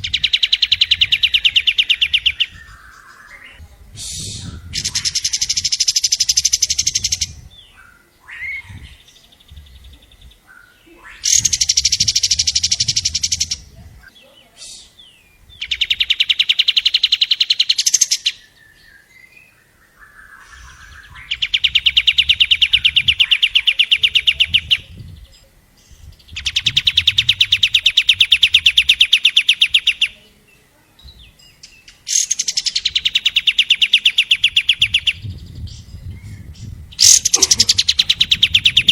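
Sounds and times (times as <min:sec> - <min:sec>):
bird chattering song: 0:00.0 - 0:38.9
short bird calls: 0:37.0 - 0:38.9.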